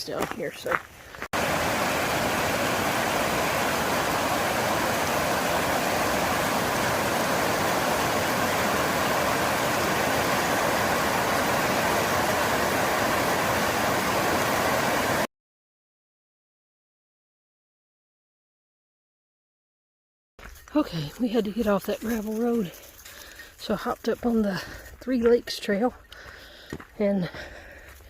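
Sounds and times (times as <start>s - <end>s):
waterfall rushing: 1.4s - 15.3s.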